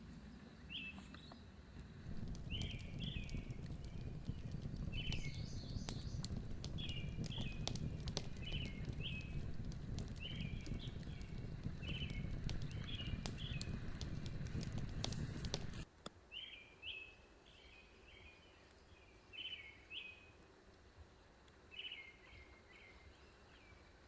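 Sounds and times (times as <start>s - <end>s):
faint clicks: 1.1s - 16.2s
wind noise: 1.7s - 15.9s.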